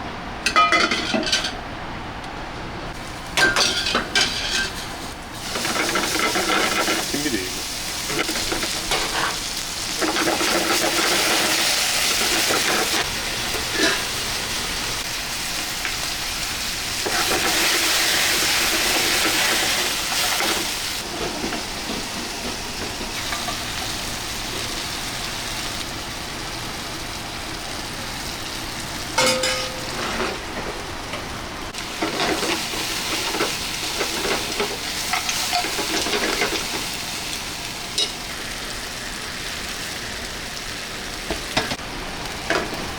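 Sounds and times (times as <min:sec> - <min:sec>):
steady hiss: 0:04.6 - 0:30.5.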